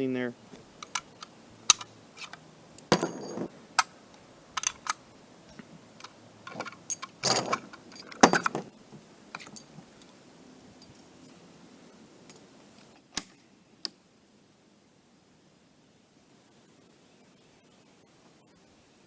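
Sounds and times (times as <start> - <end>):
metallic cartridge clicks: 0.8 - 2.4, 4.6 - 5.0.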